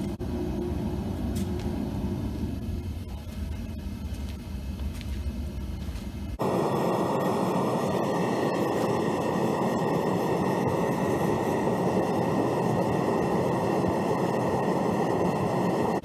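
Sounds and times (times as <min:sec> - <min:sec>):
faint high whine: 0:00.0 - 0:16.0
furnace burner rushing: 0:06.4 - 0:16.0.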